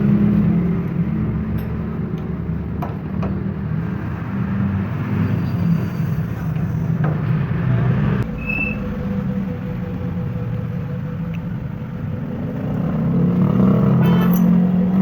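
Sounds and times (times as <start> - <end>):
low mechanical rumble: 0.0 - 13.9
short high tone: 8.3 - 10.0.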